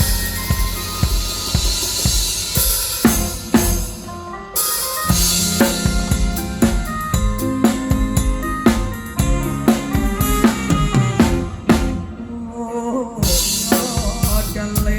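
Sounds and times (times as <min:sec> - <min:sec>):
cymbal wash: 0:00.0 - 0:07.9
drum kit kick and snare: 0:00.0 - 0:12.1, 0:13.2 - 0:14.9
live band playing: 0:00.0 - 0:12.4, 0:13.2 - 0:14.9.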